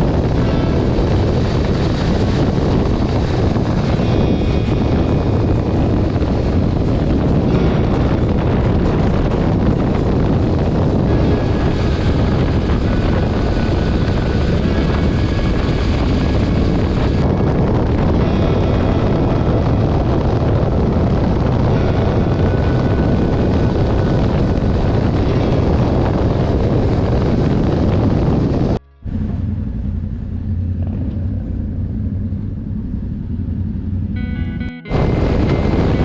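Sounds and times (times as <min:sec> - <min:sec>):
motorcycle engine drone: 0:00.0 - 0:36.0
wind rushing on microphone: 0:00.0 - 0:36.0.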